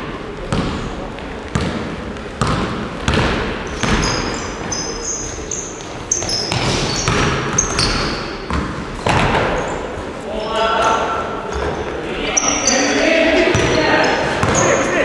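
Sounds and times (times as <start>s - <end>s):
basketballs bouncing on court: 0.4s - 9.8s, 11.5s - 15.0s
sneaker squeaks: 3.1s - 15.0s.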